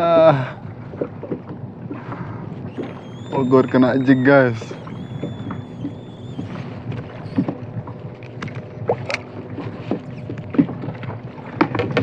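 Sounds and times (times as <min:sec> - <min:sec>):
water lapping at hull: 0:00.0 - 0:12.0
knocks and clicks on kayak: 0:07.3 - 0:12.0.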